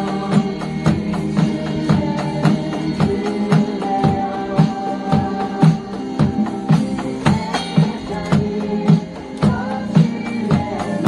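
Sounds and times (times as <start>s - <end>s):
drum kit beat: 0.0s - 11.0s
guitar and keyboard notes: 0.0s - 11.0s
pop-rock music: 0.0s - 11.0s.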